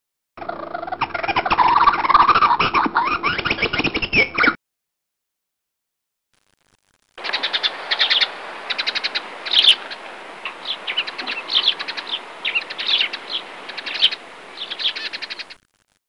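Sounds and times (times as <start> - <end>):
small birds chirping: 7.2 - 15.6
steady background hiss: 7.2 - 15.6.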